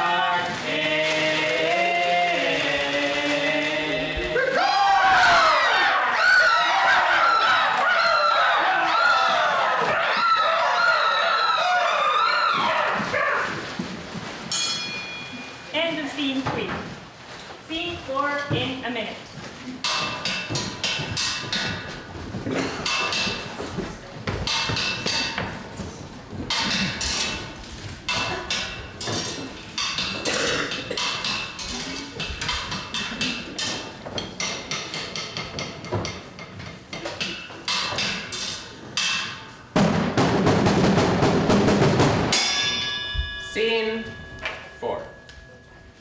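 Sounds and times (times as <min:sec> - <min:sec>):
wood blocks and drums: 0:14.4 - 0:15.6, 0:19.8 - 0:46.0
ringing tones: 0:42.4 - 0:46.0.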